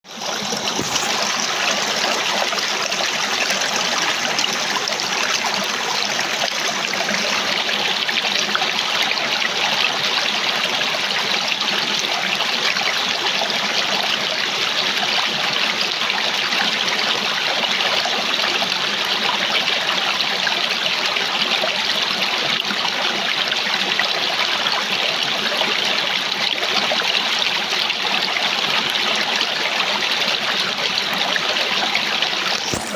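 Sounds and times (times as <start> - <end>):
small waterfall rushing: 0.2 - 19.9, 29.9 - 32.9.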